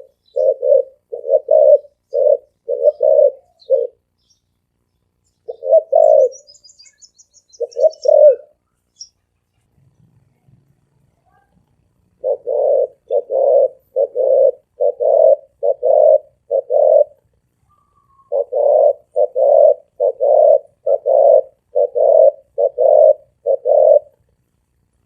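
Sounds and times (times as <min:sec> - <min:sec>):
dove cooing: 0:00.0 - 0:04.2, 0:05.4 - 0:08.6, 0:12.1 - 0:24.3.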